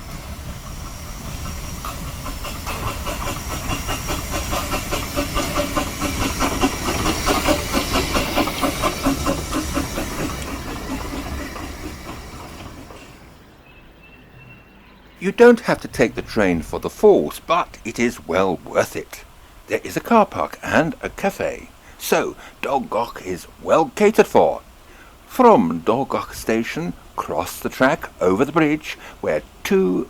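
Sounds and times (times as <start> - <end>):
hiss of steam: 0.0 - 13.4, 15.2 - 30.0
steam locomotive rhythmic beat: 0.0 - 13.4, 15.2 - 30.0.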